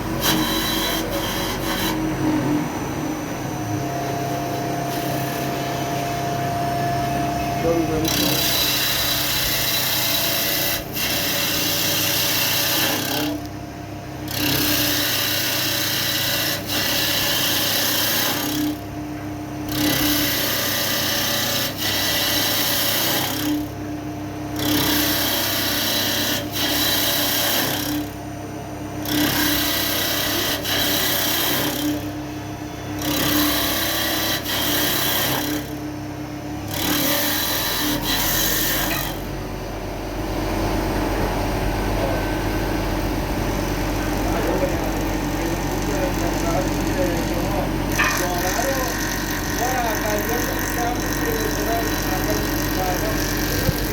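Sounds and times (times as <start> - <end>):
wood lathe cutting hiss: 0.0 - 2.8, 7.6 - 13.4, 14.3 - 18.8, 19.7 - 23.6, 24.6 - 28.1, 29.1 - 32.2, 32.9 - 35.8, 44.1 - 53.9
constant machine hum: 0.0 - 53.9.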